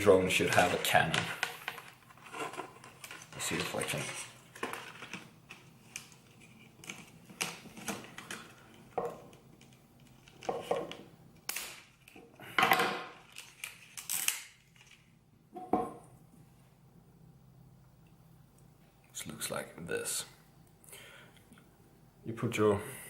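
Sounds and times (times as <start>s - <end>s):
plastic packaging rustling: 0.2s - 11.0s.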